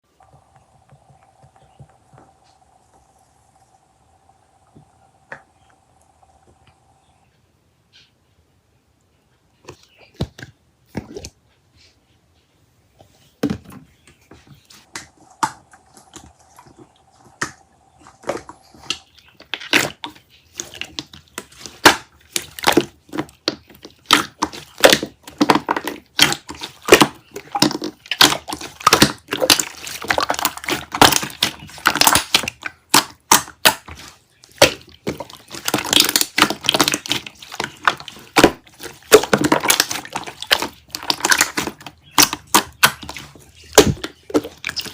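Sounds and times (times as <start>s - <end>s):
slime squishing and popping: 14.8s - 44.9s.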